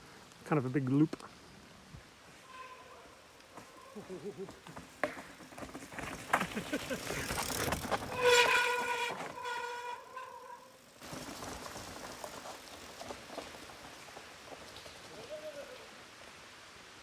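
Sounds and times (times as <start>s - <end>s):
bike rattling over rough trail: 2.4s - 16.4s
disc brakes squealing: 6.4s - 10.8s.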